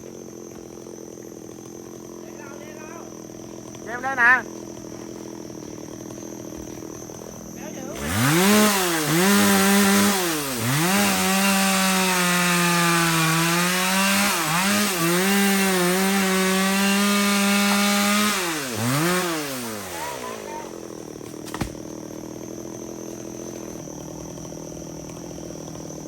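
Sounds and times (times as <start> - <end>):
chainsaw cutting wood: 0.0 - 26.0.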